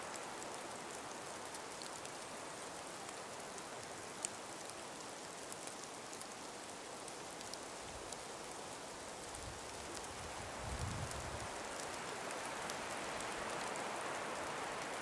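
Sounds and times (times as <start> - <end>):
soft breeze hissing: 0.0 - 15.0
tiny ticks: 0.1 - 8.6.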